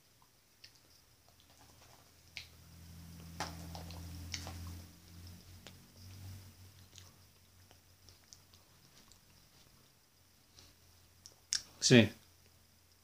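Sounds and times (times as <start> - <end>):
person chewing: 0.2 - 2.6, 3.2 - 11.7
low hum: 0.8 - 11.3
wet mouth clicks: 11.2 - 11.7.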